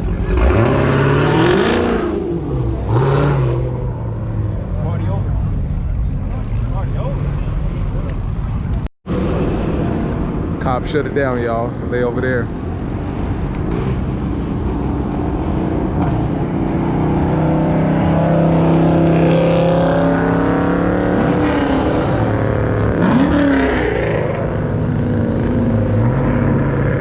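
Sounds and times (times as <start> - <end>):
engine revving: 0.0 - 4.0, 13.6 - 27.0
car engines running: 0.0 - 27.0.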